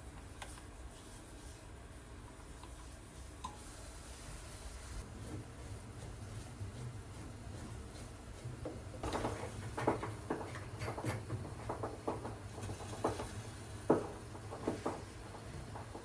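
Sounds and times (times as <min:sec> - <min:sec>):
water heater tank popping: 0:09.0 - 0:16.0.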